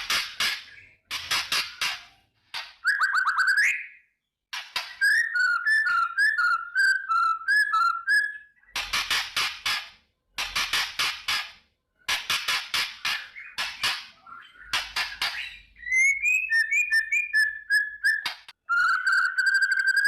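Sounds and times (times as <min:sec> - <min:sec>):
bird harsh rapid rattling: 0:00.0 - 0:03.3, 0:08.7 - 0:15.6.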